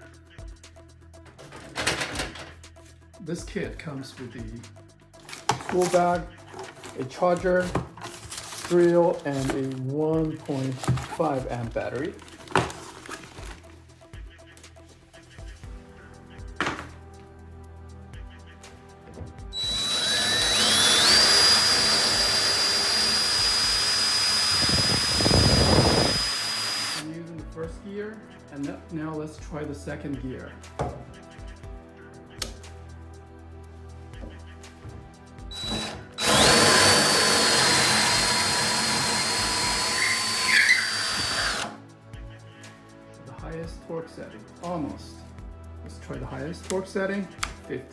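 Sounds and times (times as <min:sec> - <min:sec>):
cordless drill whining: 0:05.3 - 0:09.8, 0:10.4 - 0:13.6, 0:19.5 - 0:27.1, 0:35.5 - 0:41.8.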